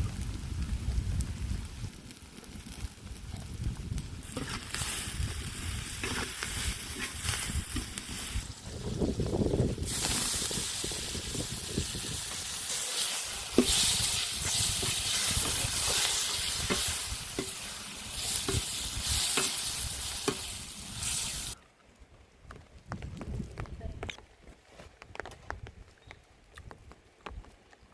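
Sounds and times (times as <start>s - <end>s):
fish frying in hot oil: 3.5s - 21.6s.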